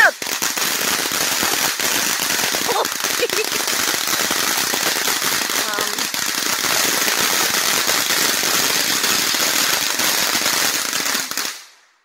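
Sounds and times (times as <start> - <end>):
fireworks hissing and crackling: 0.0 - 11.9.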